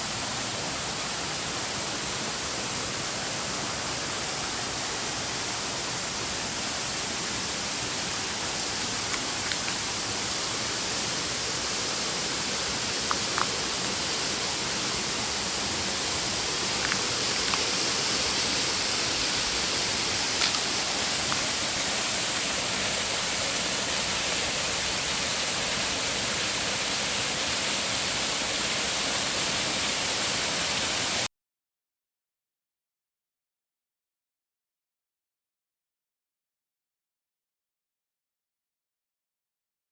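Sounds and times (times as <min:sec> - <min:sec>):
waterfall rushing: 0:00.0 - 0:31.3.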